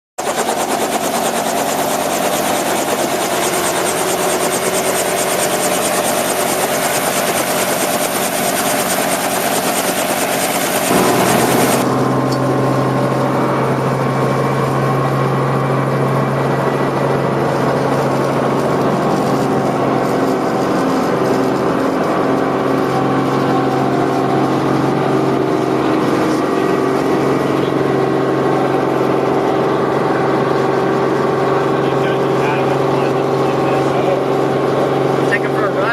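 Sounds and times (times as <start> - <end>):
helicopter engine and rotor: 0.2 - 35.9
strong low hum: 10.9 - 21.3.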